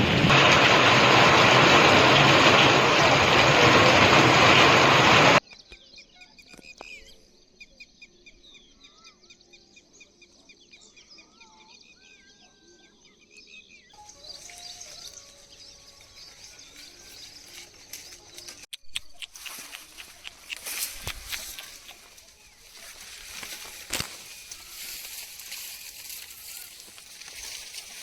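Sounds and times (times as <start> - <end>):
birds chirping and whistling: 13.7 - 28.0.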